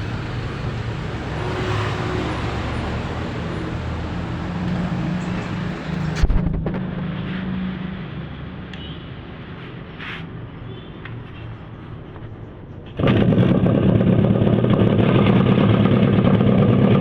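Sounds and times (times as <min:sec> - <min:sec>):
two-stroke engine running: 0:13.0 - 0:17.0.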